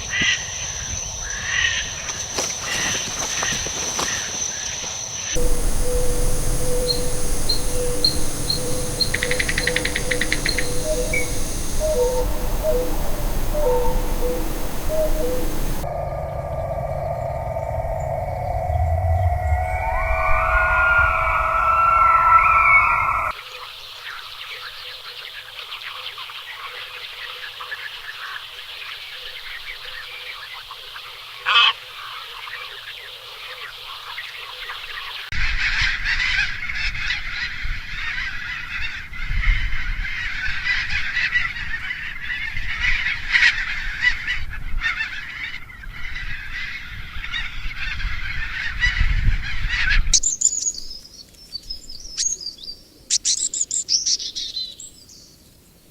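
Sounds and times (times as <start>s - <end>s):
high insect drone: 5.2s - 23.3s
short high calls: 5.4s - 15.9s, 19.3s - 23.3s
chorus of chirping animals: 5.4s - 16.4s, 18.0s - 23.3s
low hooting calls: 5.4s - 23.3s.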